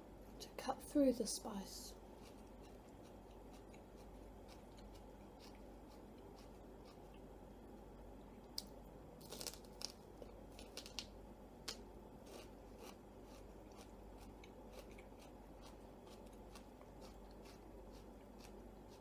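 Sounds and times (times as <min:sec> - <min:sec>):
celery crunching while chewed: 0:02.1 - 0:07.3, 0:08.5 - 0:11.1, 0:11.7 - 0:19.0.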